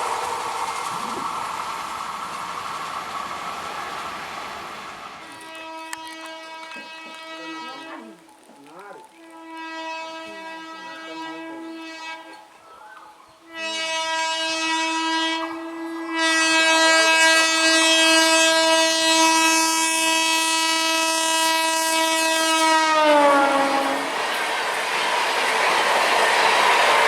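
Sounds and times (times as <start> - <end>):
train running past: 0.0 - 27.0
locomotive horn blasts: 5.3 - 12.5, 13.4 - 24.2.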